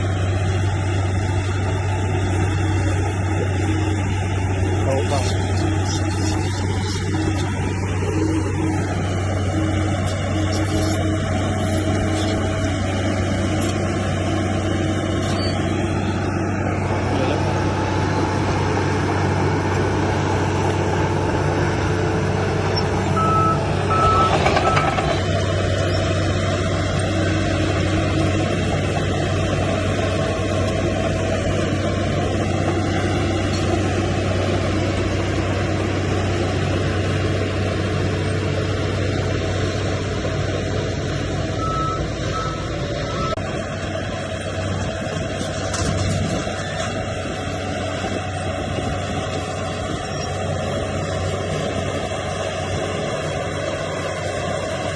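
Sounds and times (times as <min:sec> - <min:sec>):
diesel machinery running: 0:00.0 - 0:54.9
reversing alarm beeps: 0:23.2 - 0:25.0, 0:41.6 - 0:43.4.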